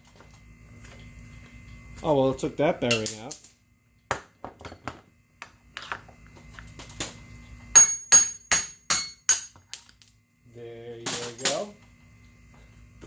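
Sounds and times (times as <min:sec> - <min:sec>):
hammer striking metal: 0:07.8 - 0:09.6.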